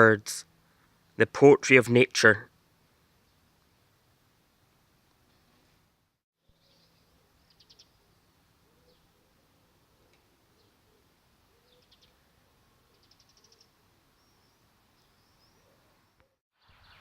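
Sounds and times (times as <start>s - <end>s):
bird trills: 6.5s - 8.1s, 12.9s - 17.0s
single bird chirps: 12.9s - 17.0s.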